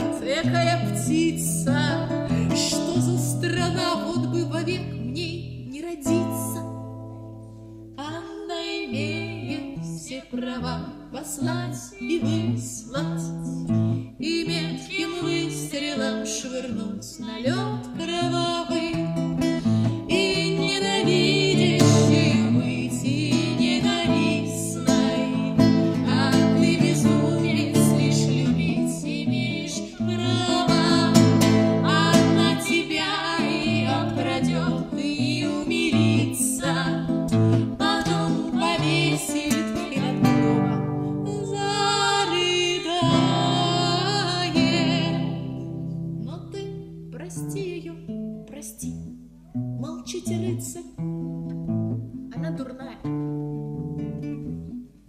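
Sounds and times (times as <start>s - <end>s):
strummed acoustic guitar: 18.0s - 41.6s.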